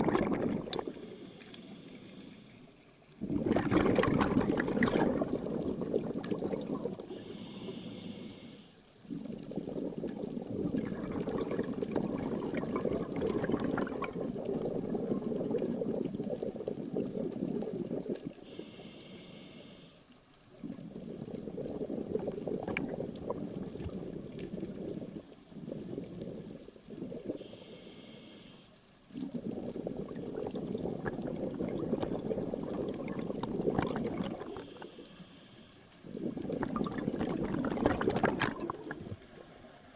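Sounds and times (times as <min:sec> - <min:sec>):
exhaust bubbling underwater: 0:00.0 - 0:00.9, 0:03.2 - 0:07.2, 0:09.1 - 0:18.4, 0:20.5 - 0:27.4, 0:29.2 - 0:34.8, 0:36.0 - 0:39.5
regulator hissing inhale: 0:00.8 - 0:02.9, 0:07.0 - 0:08.9, 0:18.4 - 0:20.2, 0:27.3 - 0:29.0, 0:34.4 - 0:36.2.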